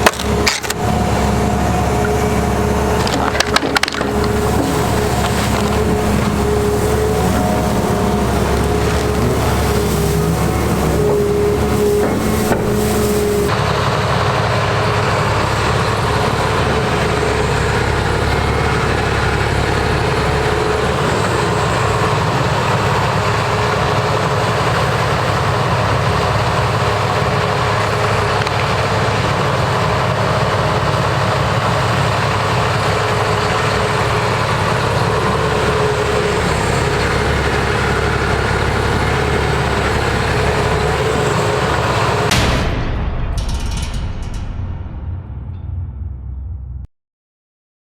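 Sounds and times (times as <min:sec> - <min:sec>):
excavator diesel engine running: 0:00.0 - 0:42.4.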